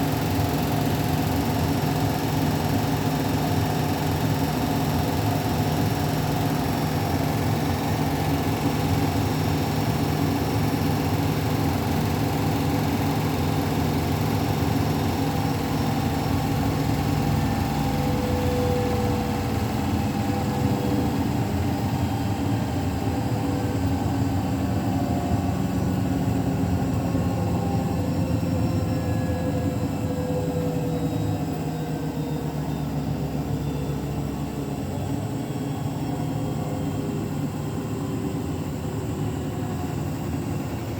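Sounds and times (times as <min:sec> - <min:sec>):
washing machine spinning: 0:00.0 - 0:30.3.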